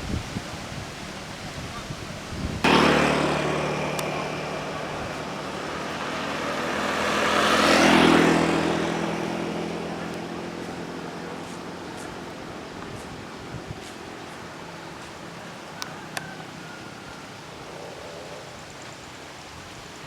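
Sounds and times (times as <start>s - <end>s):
engine running: 2.6s - 15.9s
vehicle passing by: 2.6s - 16.7s.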